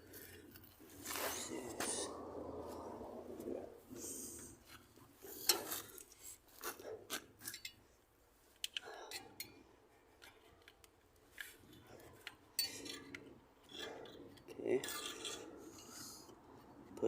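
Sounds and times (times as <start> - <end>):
rustling: 0.0 - 7.6.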